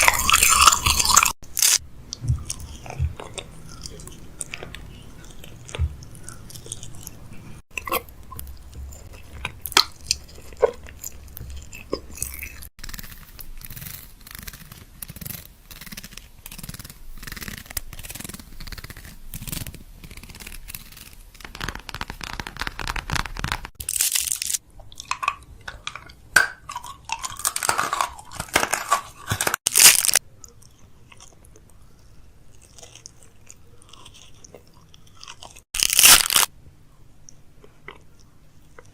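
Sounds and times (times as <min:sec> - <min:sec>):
food packaging crinkling: 0:12.9 - 0:24.6, 0:26.8 - 0:30.2, 0:35.4 - 0:36.5.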